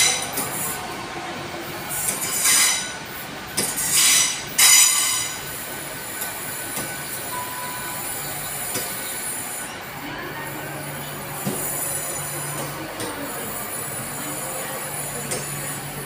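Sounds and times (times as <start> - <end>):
train running noise: 0.0 - 16.0
train wheels squealing: 3.8 - 5.4.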